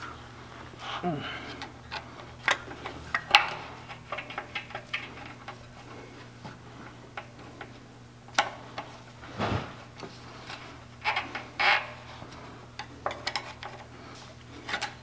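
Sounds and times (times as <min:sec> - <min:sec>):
loud scrape or knock: 0:09.4 - 0:09.8.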